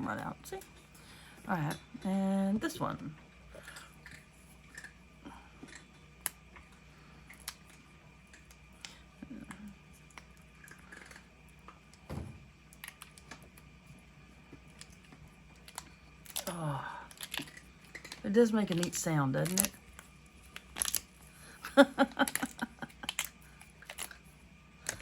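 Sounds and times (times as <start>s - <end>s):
soft thump: 12.1s - 12.5s.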